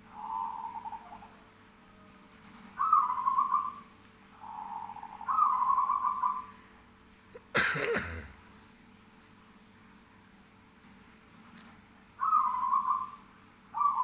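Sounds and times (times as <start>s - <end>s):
dove cooing: 0.0s - 6.7s, 12.2s - 14.0s.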